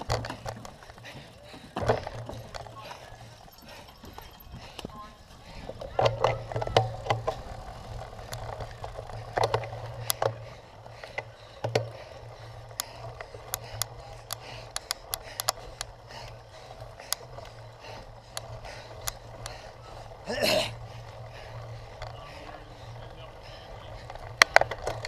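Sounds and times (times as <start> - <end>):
bike rattling over rough ground: 0.0 - 25.0
steady low hum: 0.0 - 25.0.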